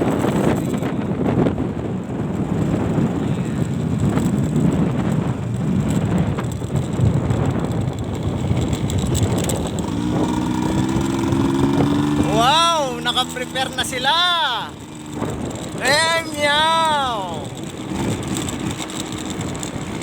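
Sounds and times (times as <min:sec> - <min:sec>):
vehicle engine hum: 0:00.0 - 0:20.0
wind buffeting microphone: 0:00.0 - 0:20.0.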